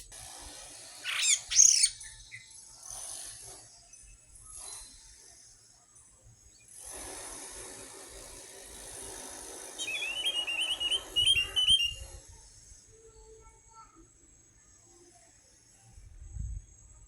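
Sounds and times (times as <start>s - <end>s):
thrush singing chirping notes: 1.0s - 2.5s, 9.8s - 12.0s.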